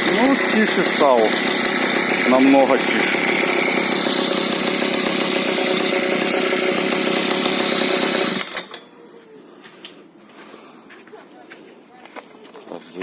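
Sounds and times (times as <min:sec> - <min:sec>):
outboard boat motor running: 0:00.0 - 0:08.6.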